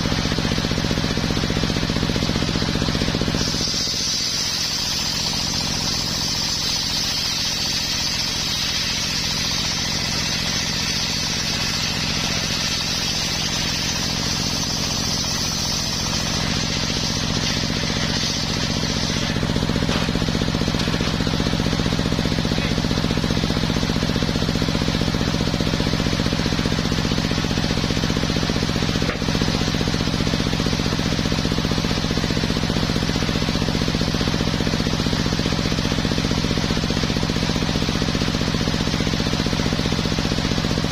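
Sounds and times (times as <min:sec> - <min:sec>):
circular sawmill running: 0:00.0 - 0:40.9
high hiss: 0:03.2 - 0:21.8.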